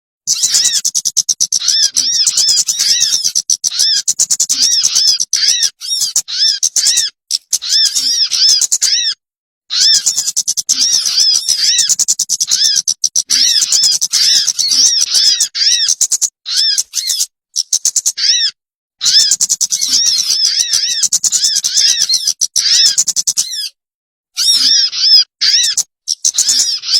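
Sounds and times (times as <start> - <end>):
bird chirping rapidly: 0.3 - 23.8, 24.4 - 26.9.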